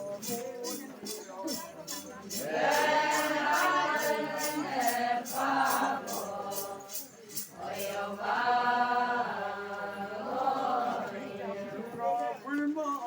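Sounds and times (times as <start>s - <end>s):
shaken percussion beat: 0.0s - 8.2s
voices singing chant-like song: 1.5s - 12.2s.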